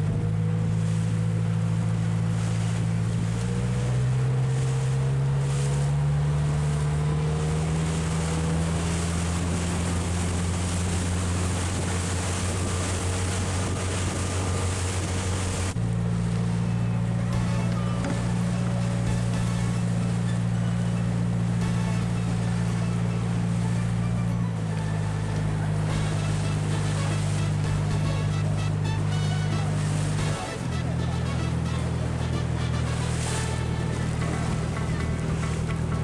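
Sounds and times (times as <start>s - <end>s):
wind noise on microphone: 0.0s - 24.8s
boat engine droning: 0.0s - 36.0s
rushing water: 0.0s - 36.0s.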